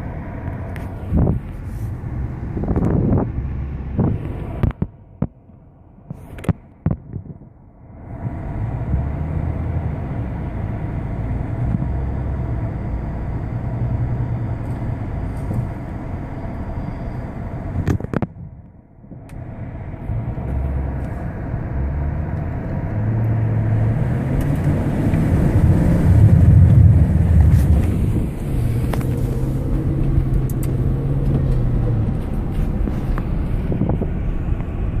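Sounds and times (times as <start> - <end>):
car engine running: 0.0 - 35.0.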